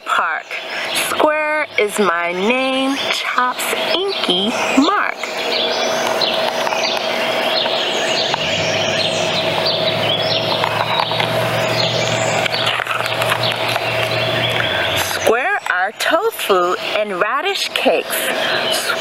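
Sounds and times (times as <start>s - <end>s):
birds chirping: 0.0s - 19.0s
steady hum: 0.0s - 19.0s
low drone: 0.6s - 15.6s.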